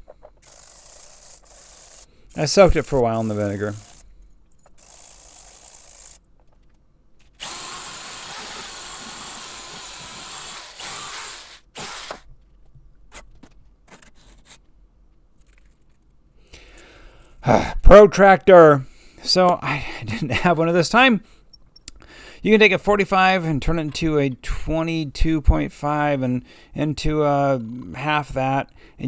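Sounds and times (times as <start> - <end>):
electric power tool running: 0.4 - 4.0, 4.8 - 6.2, 7.4 - 12.2.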